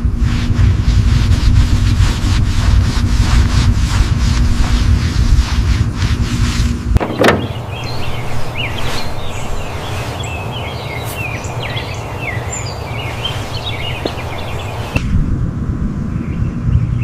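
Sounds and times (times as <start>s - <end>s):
birds chirping: 7.0s - 15.1s
outdoor hiss: 7.0s - 15.1s
low rumble: 11.4s - 17.0s.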